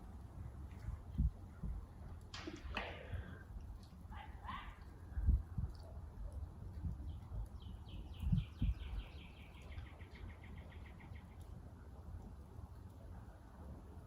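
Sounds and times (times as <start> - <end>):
low thumps: 2.3 - 3.4.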